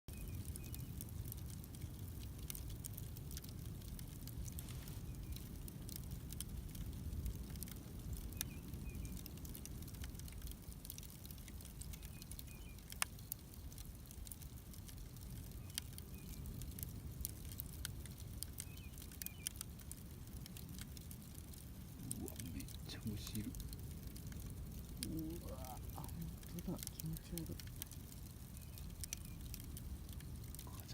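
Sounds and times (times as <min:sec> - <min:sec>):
wood bonfire crackling: 0:00.1 - 0:30.9.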